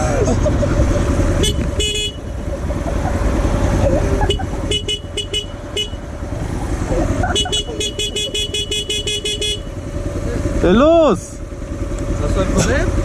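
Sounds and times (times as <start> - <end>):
low rumble of riding noise: 0.0 - 13.0
vehicle horn beeping: 1.4 - 2.4, 4.2 - 6.1, 7.3 - 9.8.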